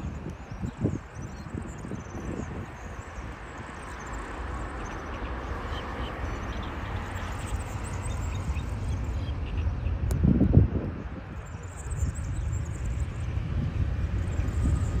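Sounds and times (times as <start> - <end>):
wind gust on microphone: 0.0 - 4.8, 6.4 - 15.0
jet airliner engine roar: 0.0 - 15.0.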